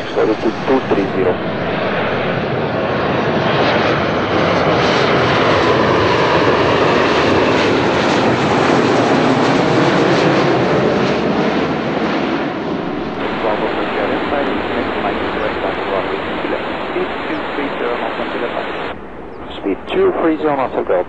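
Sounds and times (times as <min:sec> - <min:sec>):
jet airliner engines roaring: 0:00.0 - 0:21.0.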